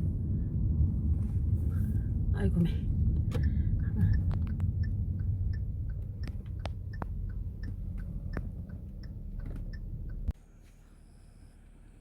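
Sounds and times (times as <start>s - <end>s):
road noise in car: 0.0s - 12.0s
turn signal ticking: 2.9s - 10.4s.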